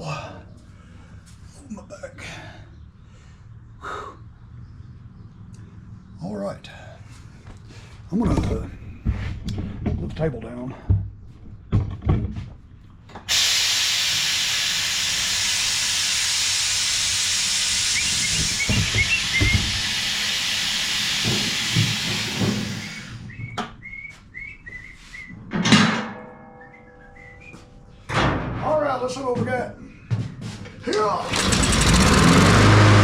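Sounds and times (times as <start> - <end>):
hiss of released air: 13.3 - 23.3.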